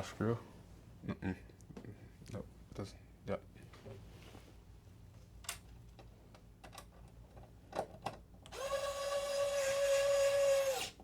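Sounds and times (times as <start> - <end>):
electric screwdriver whining: 8.5 - 11.0.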